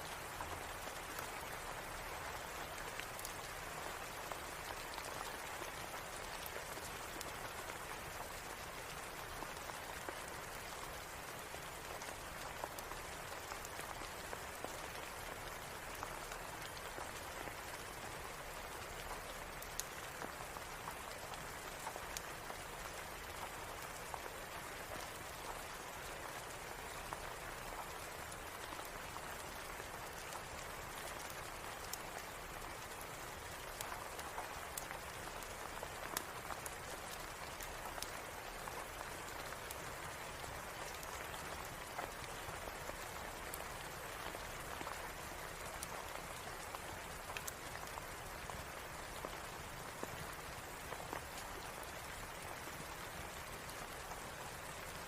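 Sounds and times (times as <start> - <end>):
steady rain: 0.0 - 55.0
wood fire crackling: 3.0 - 9.2, 9.8 - 54.8.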